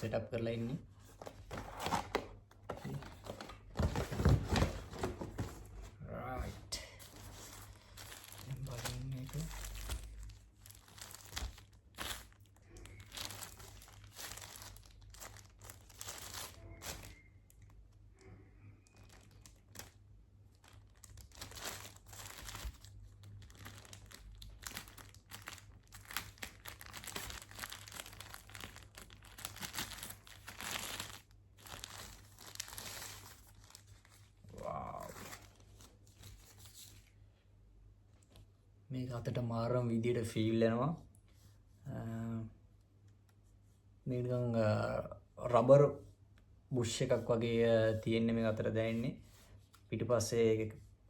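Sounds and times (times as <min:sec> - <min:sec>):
packaging crinkling and tearing: 0:07.1 - 0:17.8, 0:18.8 - 0:37.0.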